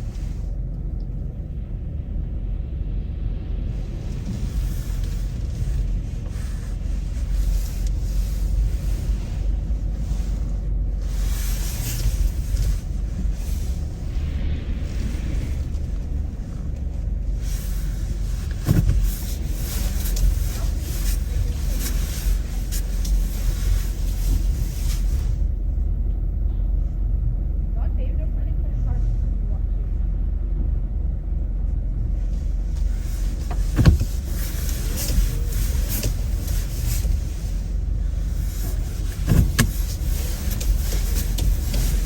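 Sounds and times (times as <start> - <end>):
car road rumble: 0.0 - 42.0
tyre noise hiss: 32.3 - 42.0.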